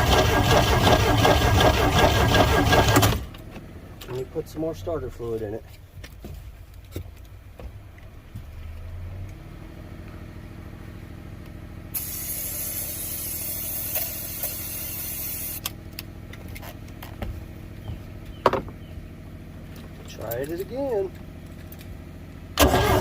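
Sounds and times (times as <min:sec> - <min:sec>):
steady mechanical hum: 0:03.0 - 0:23.0
aerosol spray hiss: 0:12.0 - 0:15.5.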